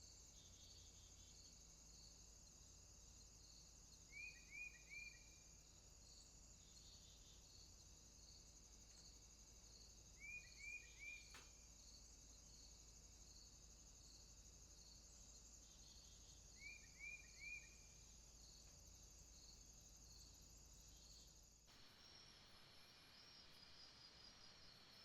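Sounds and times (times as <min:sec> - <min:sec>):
insect chorus trilling: 0:00.4 - 0:25.0
faint click: 0:11.3 - 0:11.6.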